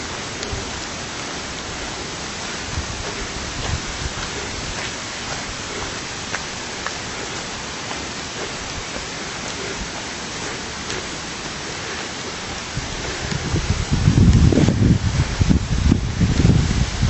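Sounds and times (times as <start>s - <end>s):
water rushing: 0.0s - 17.0s
faint ticks: 0.3s - 13.5s.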